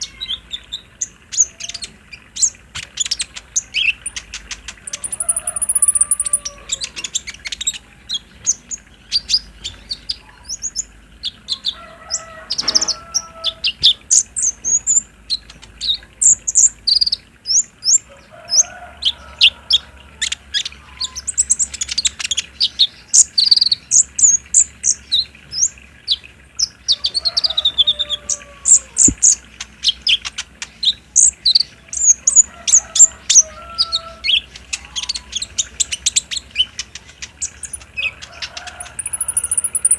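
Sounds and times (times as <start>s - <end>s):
sunbirds chirping and trilling: 0.0s - 39.9s
lower sliding bird calls: 1.4s - 8.6s, 37.4s - 39.9s.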